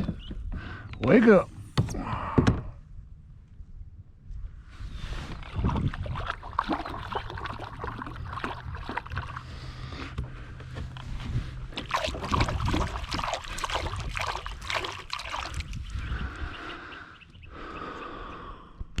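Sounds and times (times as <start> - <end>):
water splashing against boat: 5.1 - 9.9, 11.1 - 16.3.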